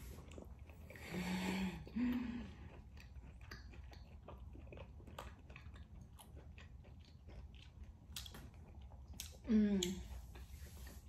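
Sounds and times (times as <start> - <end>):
wet chewing mouth clicks: 0.0 - 11.0
person humming: 9.5 - 10.0.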